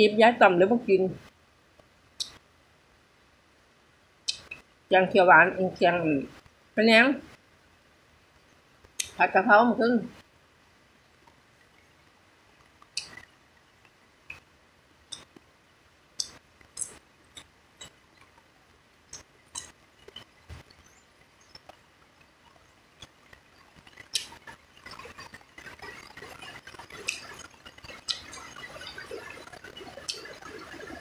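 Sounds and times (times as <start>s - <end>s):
wet mouth clicks: 2.2s - 2.4s, 4.3s - 4.6s, 9.0s - 9.2s, 12.8s - 13.3s, 15.1s - 15.4s, 16.2s - 18.3s, 19.1s - 20.3s, 23.0s - 30.7s
crackling patter: 10.1s - 31.0s
chewing raw vegetables: 23.0s - 31.0s.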